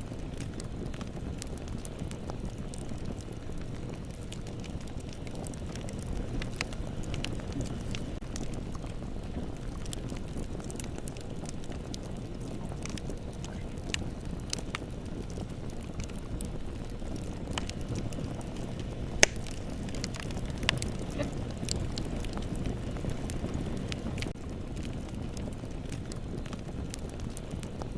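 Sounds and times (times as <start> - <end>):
bonfire crackling: 0.0 - 27.9
loud pop from fire: 19.1 - 22.6.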